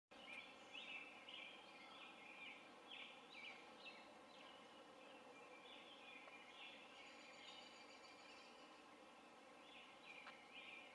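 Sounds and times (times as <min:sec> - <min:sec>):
steady outdoor hiss: 0:00.1 - 0:10.9
faint bird chirps: 0:00.2 - 0:10.9.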